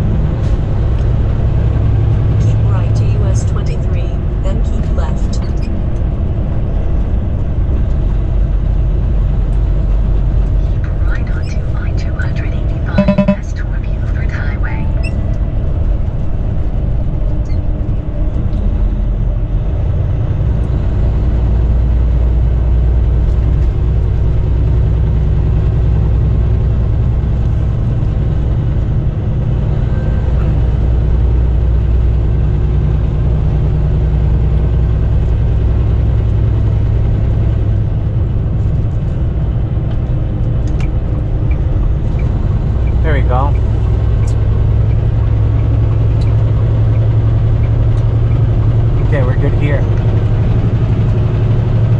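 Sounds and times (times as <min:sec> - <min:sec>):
road noise: 0:00.0 - 0:51.9.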